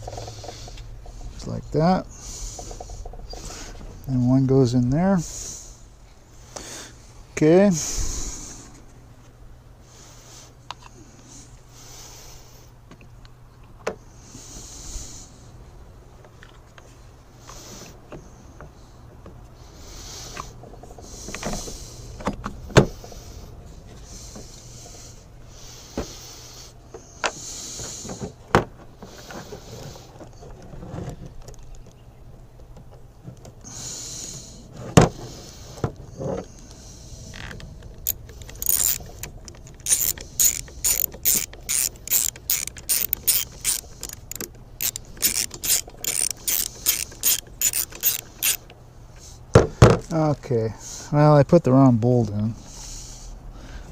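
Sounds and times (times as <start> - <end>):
engine parts clicking and rustling: 0.0 - 6.7, 16.1 - 19.5, 20.3 - 50.5
ratchet wrench clicking: 38.0 - 48.7.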